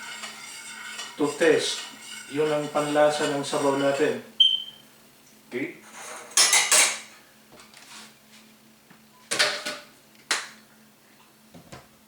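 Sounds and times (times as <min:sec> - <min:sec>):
kitchen items clattering: 0:00.0 - 0:04.0, 0:05.9 - 0:07.1.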